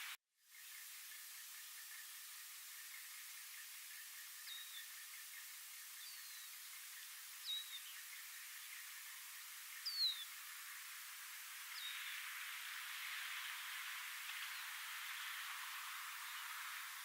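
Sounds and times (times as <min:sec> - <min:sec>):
faint hiss: 0:00.0 - 0:17.0
bird whistled call notes: 0:04.4 - 0:04.9, 0:06.0 - 0:06.6, 0:07.4 - 0:08.1, 0:09.8 - 0:10.3.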